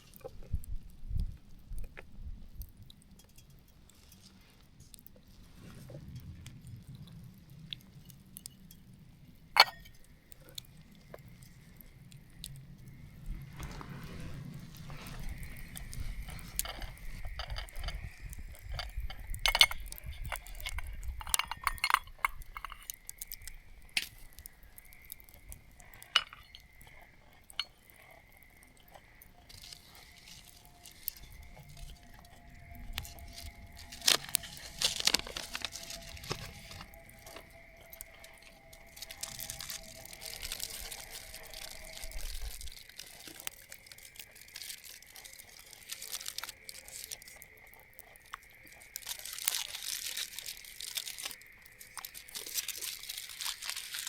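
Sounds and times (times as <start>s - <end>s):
clinks of cookware and utensils: 9.6s - 10.0s, 18.6s - 23.0s, 26.0s - 26.7s
faint steady high tone: 9.6s - 10.0s.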